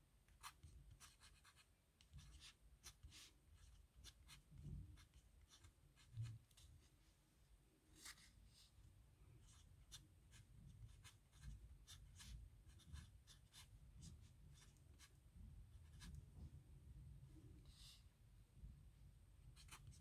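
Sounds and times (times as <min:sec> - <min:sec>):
pen scratching on paper: 0:10.3 - 0:15.1.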